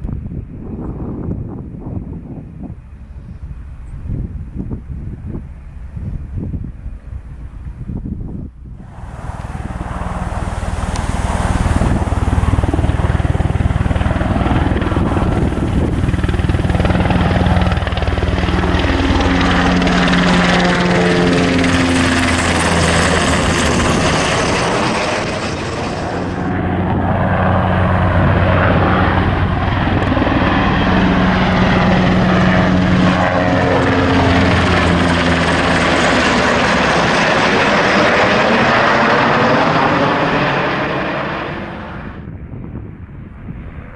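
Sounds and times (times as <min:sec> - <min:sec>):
helicopter flying by: 0:08.8 - 0:42.4.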